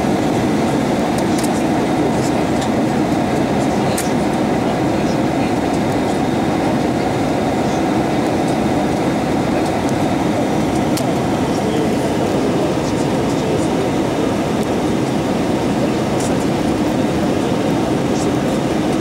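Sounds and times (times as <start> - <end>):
airplane cabin roar: 0.0 - 19.0.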